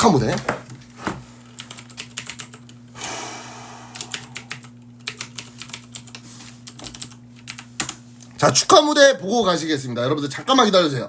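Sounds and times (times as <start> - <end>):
low electrical hum: 0.0 - 11.0
computer keyboard typing: 1.6 - 2.8, 4.0 - 8.0.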